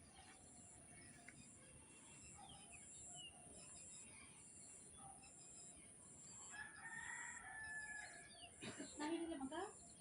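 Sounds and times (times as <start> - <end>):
village ambience: 0.0 - 10.0
faint rooster crowing: 6.5 - 8.4.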